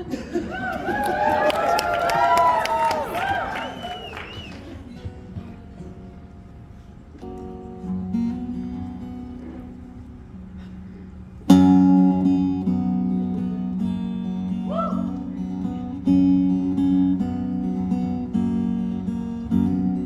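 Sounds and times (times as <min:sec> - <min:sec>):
acoustic guitar strumming chords: 0:04.8 - 0:20.0.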